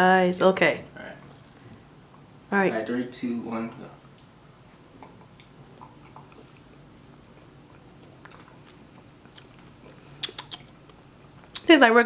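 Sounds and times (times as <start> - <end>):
people eating off spoons: 4.0 - 11.7.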